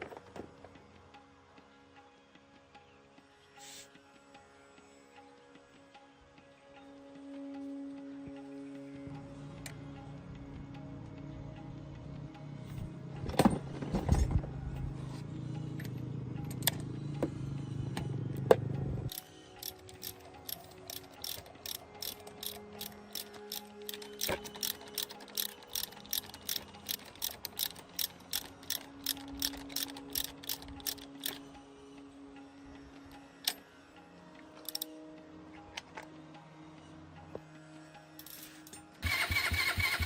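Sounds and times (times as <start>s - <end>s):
mechanical ratchet clicking: 19.1s - 31.4s, 34.6s - 34.9s.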